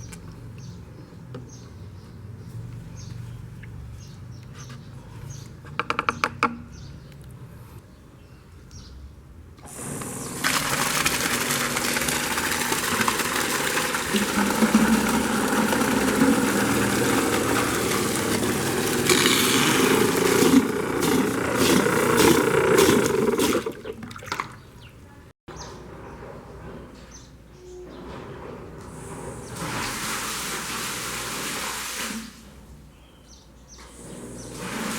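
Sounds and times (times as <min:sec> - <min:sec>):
water gushing and splashing: 0:09.8 - 0:24.5.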